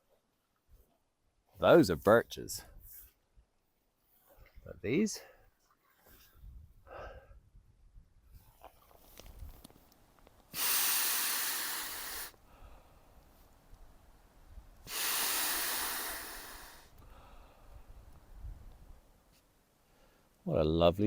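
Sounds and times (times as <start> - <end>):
hissing rushes of air: 10.5 - 12.4, 14.8 - 16.9.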